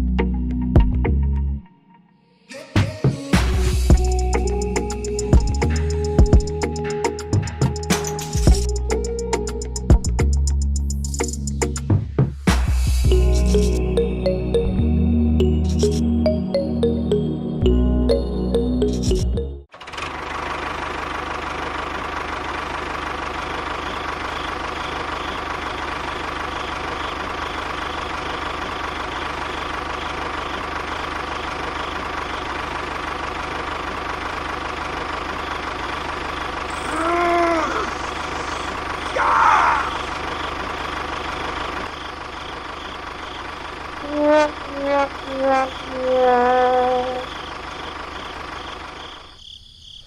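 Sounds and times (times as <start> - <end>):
small engine running: 19.7 - 49.3
short pitched calls: 36.7 - 40.5, 44.0 - 47.5.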